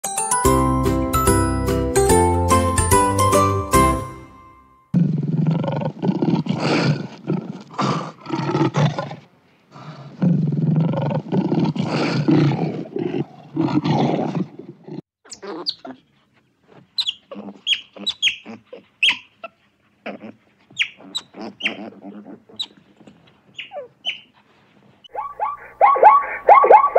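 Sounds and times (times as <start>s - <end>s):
lion roaring and growling: 5.0s - 15.0s
otters chirping: 15.2s - 15.9s, 17.0s - 19.3s, 20.7s - 21.9s, 22.5s - 22.8s, 23.5s - 24.3s, 25.1s - 26.9s.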